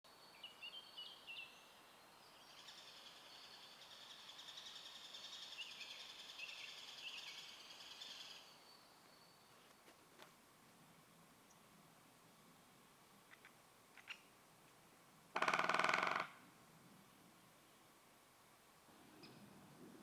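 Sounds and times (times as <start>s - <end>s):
songbird chirping and twittering: 0.1s - 10.0s.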